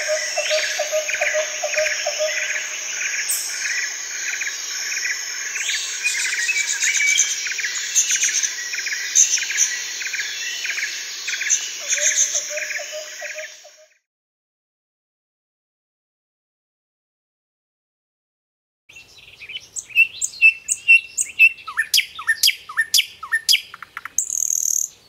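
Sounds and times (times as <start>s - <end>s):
bird-like chirps: 0.0s - 13.9s, 18.9s - 25.0s.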